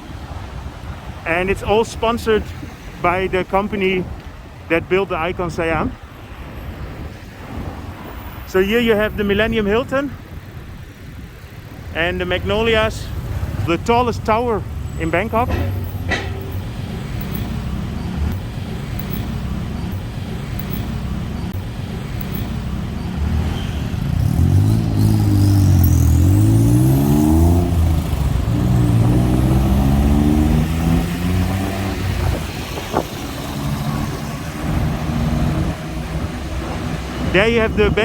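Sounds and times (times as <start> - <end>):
street traffic rumble: 0.0 - 38.0
vehicle engine accelerating: 12.6 - 38.0.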